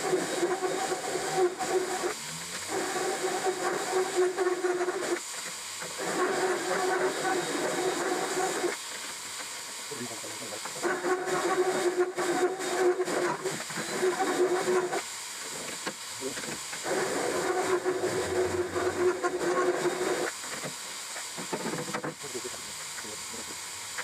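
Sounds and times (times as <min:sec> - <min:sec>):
power drill whining: 0:00.0 - 0:05.2, 0:10.8 - 0:15.7, 0:16.4 - 0:20.7.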